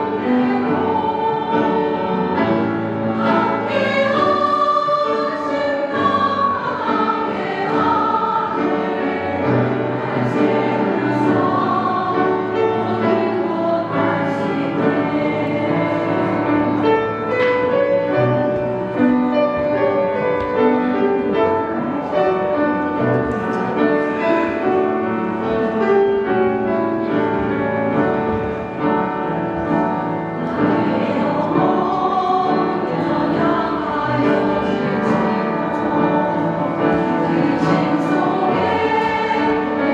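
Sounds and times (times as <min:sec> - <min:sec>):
women singing in harmony: 0:00.0 - 0:17.7, 0:30.5 - 0:39.9.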